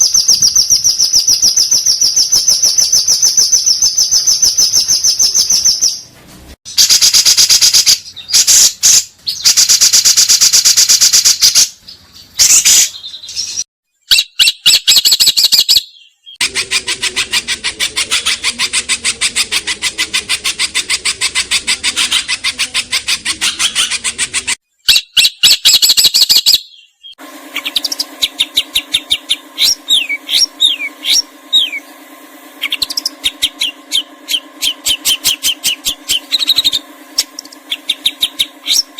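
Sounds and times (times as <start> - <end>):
whistled bird notes: 0.0 - 6.0, 24.7 - 38.9
songbirds chattering: 6.7 - 10.0, 11.2 - 38.9
low hum: 27.2 - 38.9.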